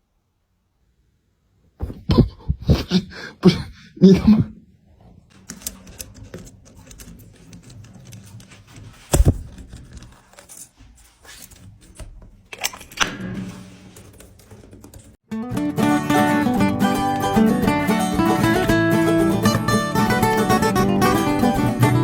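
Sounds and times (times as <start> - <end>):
loud thump: 9.1 - 9.7
guitar music: 15.3 - 22.0.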